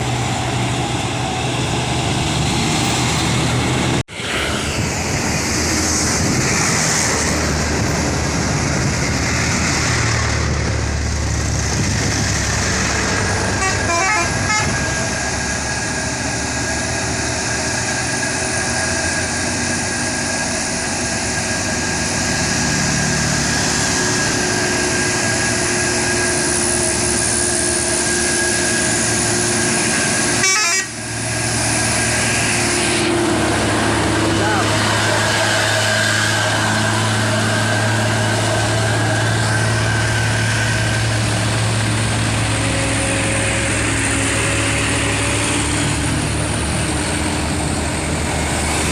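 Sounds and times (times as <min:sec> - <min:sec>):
heavy truck engine under load: 0:00.0 - 0:48.9
vehicle horn toots: 0:13.6 - 0:14.8, 0:30.4 - 0:31.0.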